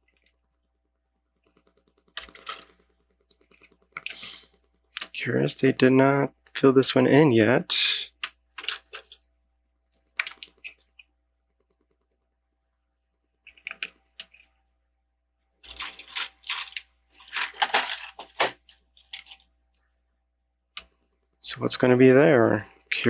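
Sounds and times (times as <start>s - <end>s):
plastic bricks clicking and rattling: 2.1s - 2.7s, 8.6s - 9.2s, 15.6s - 19.5s.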